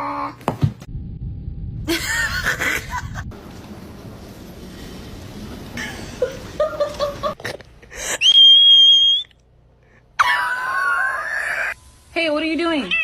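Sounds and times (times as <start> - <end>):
high steady whistling tone: 8.2 - 9.4.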